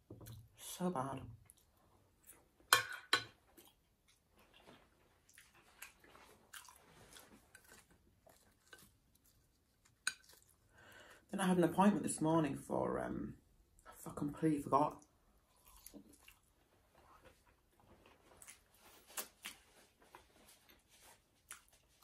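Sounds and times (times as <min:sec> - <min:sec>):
close-up chewing of food: 0:03.5 - 0:10.8, 0:15.4 - 0:22.0.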